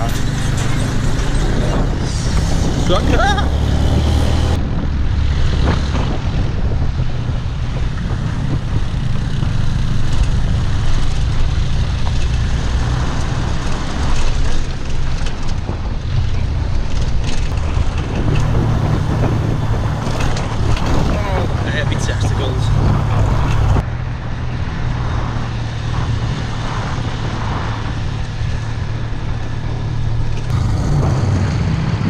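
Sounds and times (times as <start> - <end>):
road and wind noise: 0.0 - 32.0
motorbike engine running: 29.8 - 32.0.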